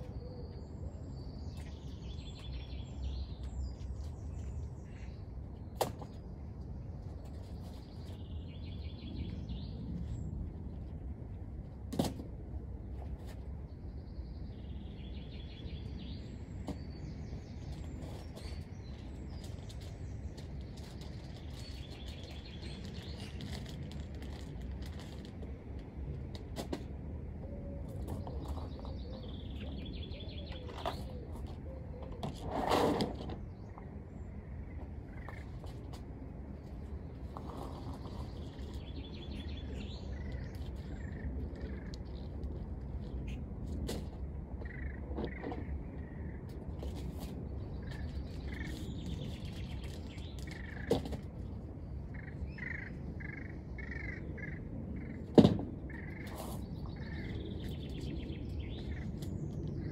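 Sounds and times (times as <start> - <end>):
small birds chirping and trilling: 0.0 - 11.2, 13.2 - 25.6, 27.4 - 32.5, 33.2 - 59.9
steady low rumble: 0.0 - 32.6, 33.4 - 59.9.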